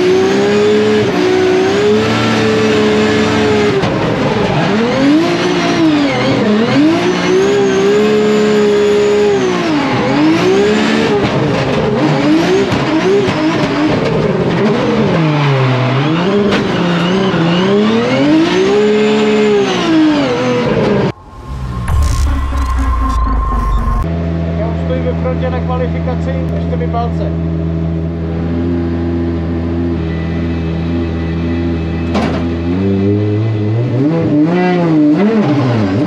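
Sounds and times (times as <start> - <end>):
car engine revving hard: 0.0 - 24.1.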